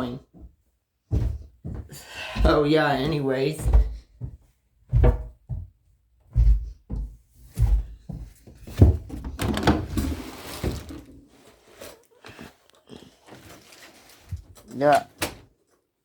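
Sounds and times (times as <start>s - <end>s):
rustling and shuffling: 3.1s - 15.9s
dull thumps and knocks: 6.3s - 11.1s.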